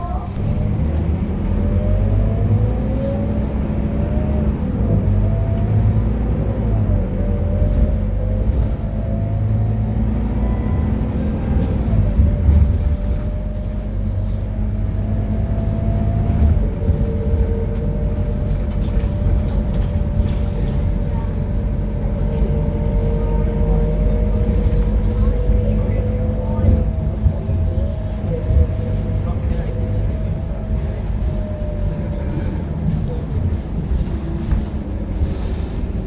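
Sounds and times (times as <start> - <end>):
bus diesel engine rumble: 0.0 - 36.0.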